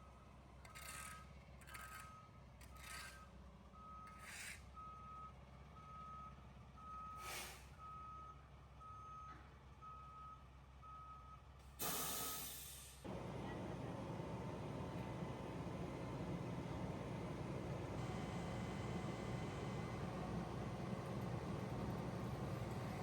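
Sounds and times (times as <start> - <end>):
reversing alarm beeping: 13.1 - 23.0.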